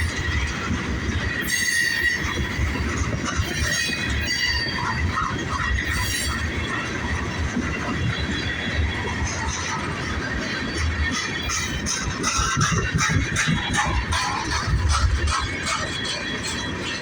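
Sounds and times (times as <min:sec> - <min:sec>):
train wheels rumbling on rails: 0:00.0 - 0:17.0
high wheel squeal: 0:01.4 - 0:02.8, 0:03.4 - 0:06.6.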